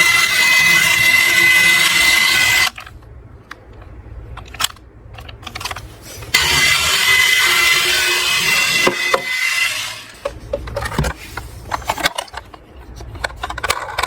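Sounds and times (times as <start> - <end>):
toy cars rolling and rattling: 0.0 - 14.0
clicks of toys being handled: 0.2 - 5.9, 10.2 - 14.0.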